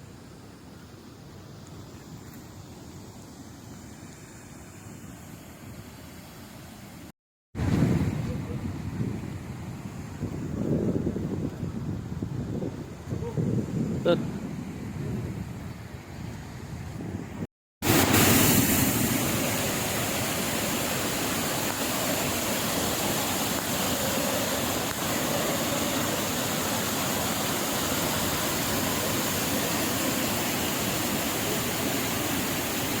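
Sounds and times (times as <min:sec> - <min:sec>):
water rushing down spillway: 0:17.8 - 0:33.0.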